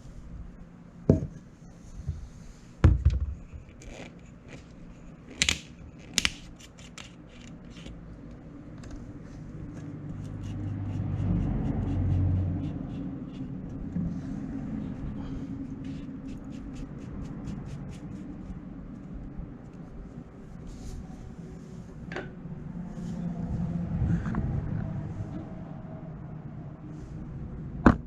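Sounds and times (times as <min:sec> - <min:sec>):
low rumble: 0:22.3 - 0:27.9.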